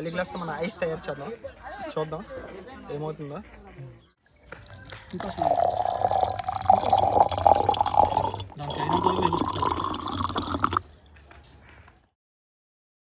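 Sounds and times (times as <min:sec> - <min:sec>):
water pouring into a glass: 0:04.6 - 0:11.0.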